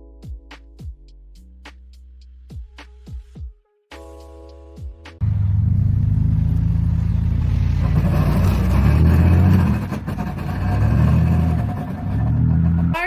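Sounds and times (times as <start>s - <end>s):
vehicle engine running: 5.2s - 13.0s.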